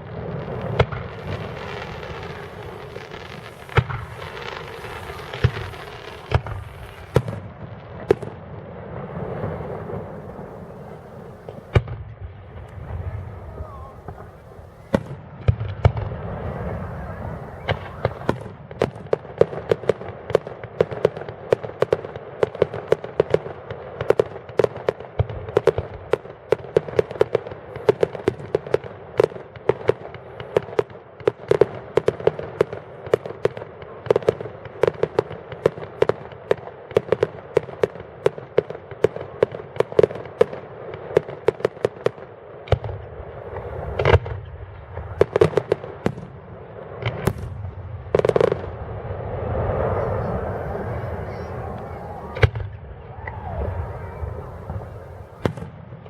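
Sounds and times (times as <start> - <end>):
deep firework booms: 0.0 - 22.1, 41.2 - 56.0
fireworks bangs and crackles: 0.0 - 56.0.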